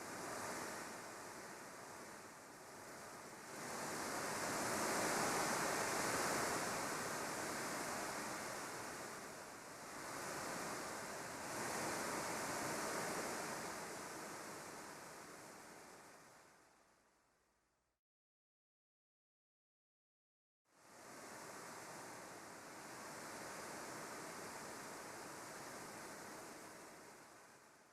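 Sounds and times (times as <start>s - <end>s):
waves washing: 0.0s - 16.3s.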